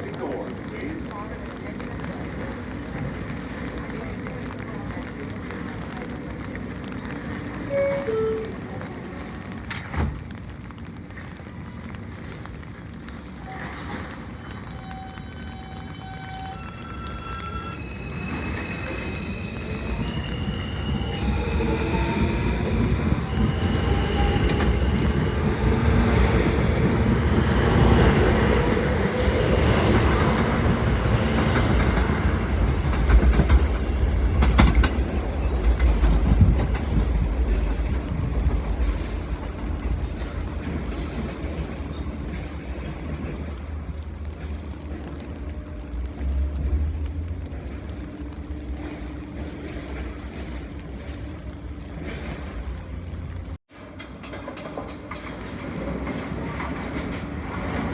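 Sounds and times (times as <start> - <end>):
subway train on track: 0.0 - 57.9
sharp knocks of train: 9.7 - 10.3, 22.8 - 39.2.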